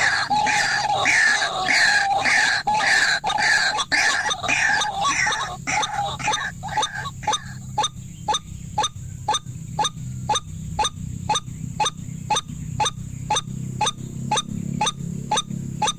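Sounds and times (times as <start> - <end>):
steady low hum: 0.0 - 15.9
waterhen calls: 0.0 - 15.9.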